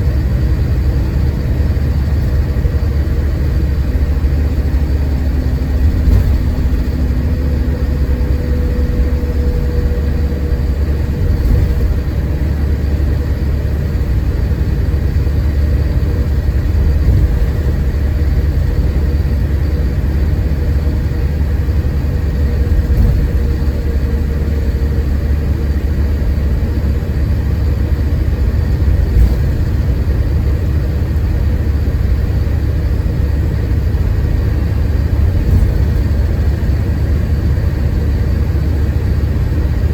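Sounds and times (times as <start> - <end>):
bus engine drone: 0.0 - 39.9
faint whine: 0.0 - 39.9
road noise: 0.0 - 39.9.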